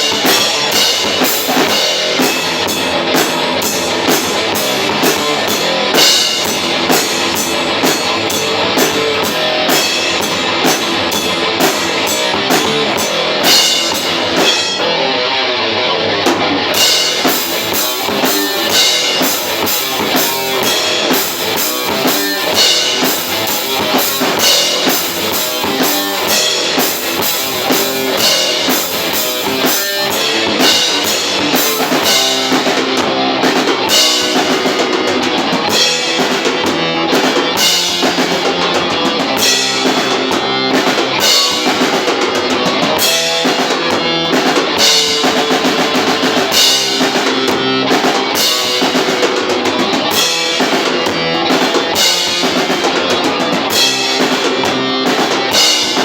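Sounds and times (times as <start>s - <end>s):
rapid cymbal strikes: 0.0s - 14.9s, 16.7s - 56.0s
electric guitar: 0.0s - 56.0s
metal band playing live: 0.0s - 56.0s
bass drum: 16.3s - 56.0s.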